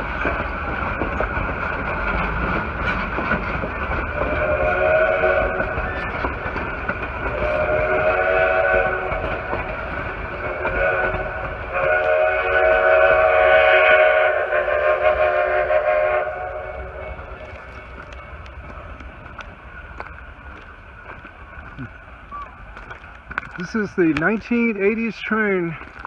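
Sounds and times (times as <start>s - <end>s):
low rumble of train: 0.0s - 26.0s
steam locomotive whistle blasts: 4.1s - 6.1s, 7.3s - 9.4s, 10.4s - 17.5s.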